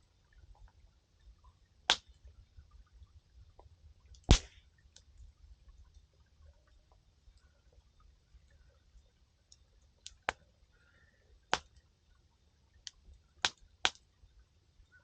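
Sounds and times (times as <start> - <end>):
faint low rumble: 0.0 - 15.0
firewood crackling and popping: 4.0 - 5.1, 9.5 - 10.4, 11.5 - 11.8, 12.8 - 14.0.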